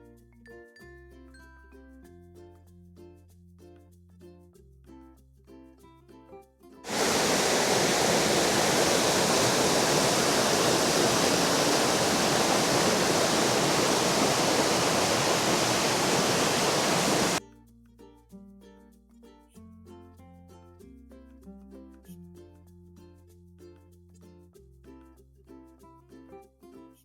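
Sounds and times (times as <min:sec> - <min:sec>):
waterfall rushing: 0:06.9 - 0:17.4.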